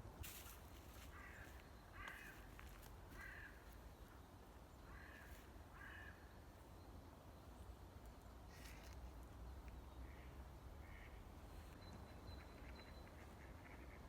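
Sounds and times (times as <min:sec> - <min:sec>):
crow cawing: 0:01.0 - 0:02.5, 0:03.1 - 0:03.6, 0:04.9 - 0:06.2.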